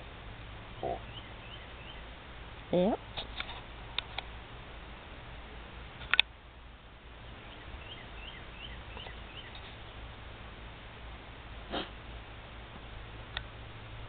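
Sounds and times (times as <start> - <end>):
bird chirping: 0.8 - 2.2, 7.4 - 9.8.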